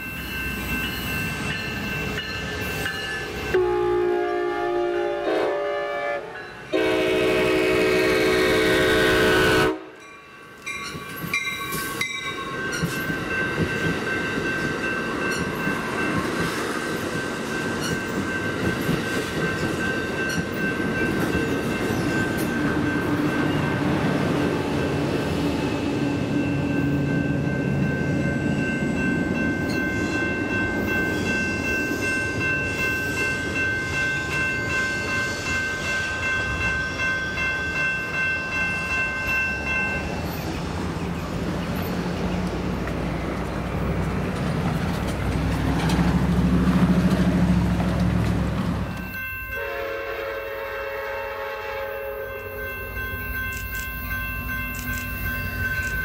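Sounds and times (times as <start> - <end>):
crossing bell ringing: 0.0 - 44.0, 48.8 - 56.0
train rumbling past: 0.0 - 56.0
distant train horn: 3.5 - 10.0, 48.9 - 52.8.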